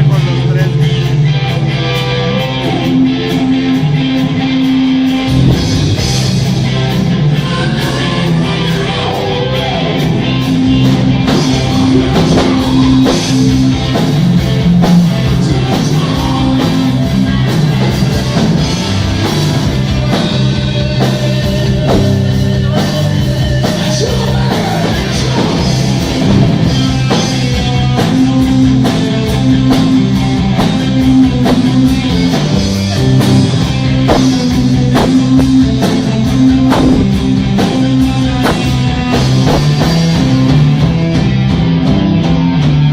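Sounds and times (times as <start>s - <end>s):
rock music: 0.0s - 42.9s
person singing: 7.2s - 10.2s, 11.3s - 14.2s, 14.8s - 28.2s.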